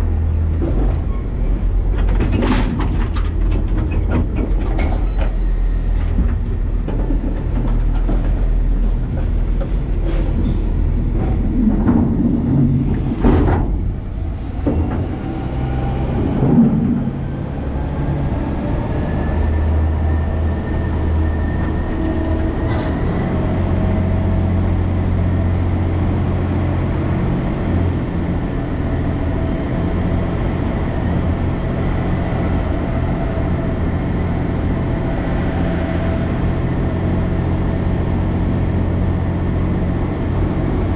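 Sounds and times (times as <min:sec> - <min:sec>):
garbage truck engine and hydraulics: 0:00.0 - 0:40.9
knocks and clattering rumbles: 0:00.4 - 0:17.4.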